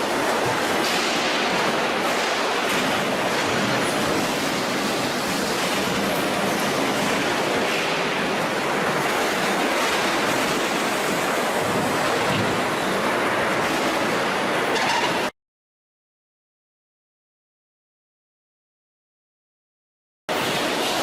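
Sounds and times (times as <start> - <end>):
factory machinery hiss and rumble: 0.0 - 15.3, 20.3 - 21.0.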